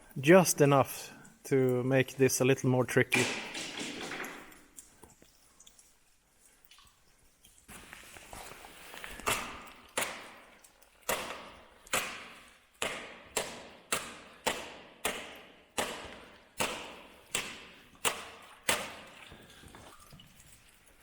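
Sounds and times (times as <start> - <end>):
paddle striking ice echoing: 9.3 - 19.2.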